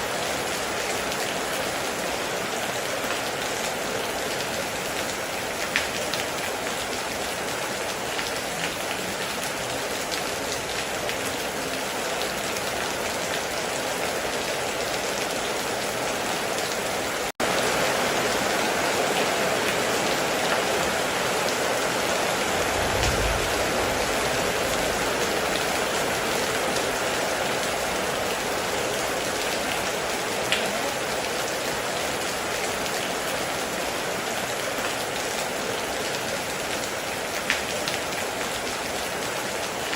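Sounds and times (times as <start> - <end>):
heavy rain falling: 0.0 - 39.9
distant thunder rumble: 22.4 - 26.7.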